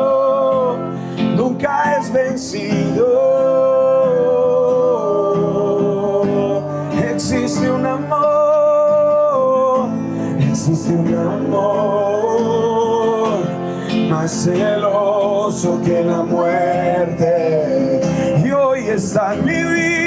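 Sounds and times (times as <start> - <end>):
person singing long notes: 0.0 - 20.0
plucked guitar: 0.0 - 20.0.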